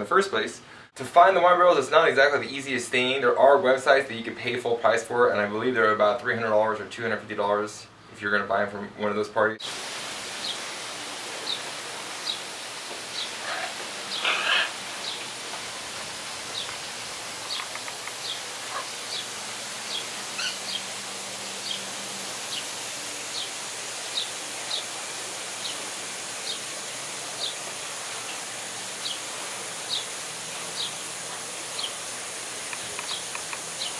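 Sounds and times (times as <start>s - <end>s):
steady outdoor hiss: 0.0s - 33.9s
small bird chirping: 17.4s - 19.3s, 32.7s - 33.9s.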